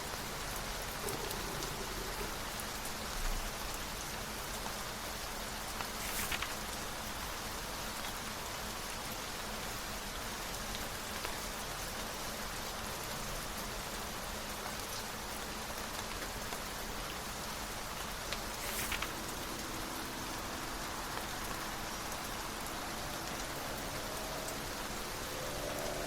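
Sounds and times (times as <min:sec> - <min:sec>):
rain falling on a surface: 0:00.0 - 0:26.0
papery rustle: 0:05.7 - 0:06.9, 0:18.3 - 0:20.0.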